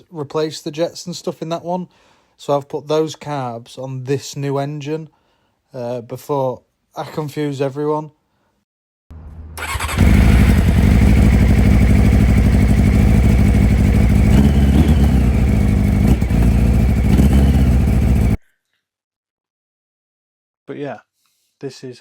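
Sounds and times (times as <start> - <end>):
motorcycle engine starting and running: 9.2 - 18.4.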